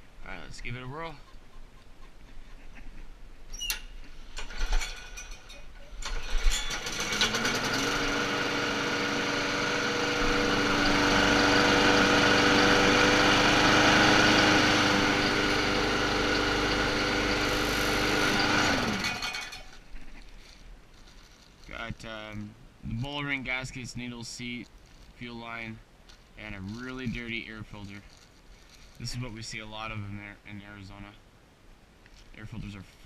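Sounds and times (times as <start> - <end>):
lawn mower engine running: 4.3 - 19.8
recoil rope pull-start: 4.3 - 19.8.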